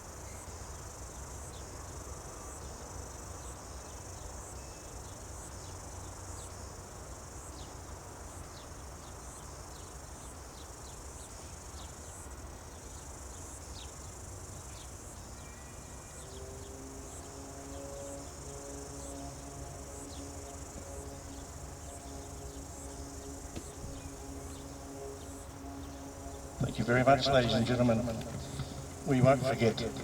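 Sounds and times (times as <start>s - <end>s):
insects chirring: 10.6s - 30.0s
long held musical notes: 15.7s - 30.0s.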